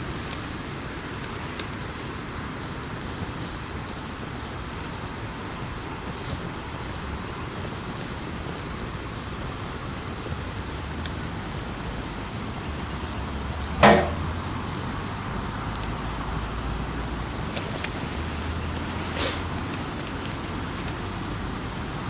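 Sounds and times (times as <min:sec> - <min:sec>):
campfire hissing and crackling: 0:00.0 - 0:22.0
campfire loud pop: 0:13.8 - 0:14.4.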